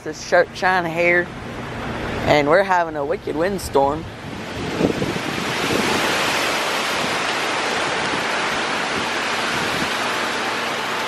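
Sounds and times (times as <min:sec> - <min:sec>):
strong wind blowing: 0:03.2 - 0:11.0.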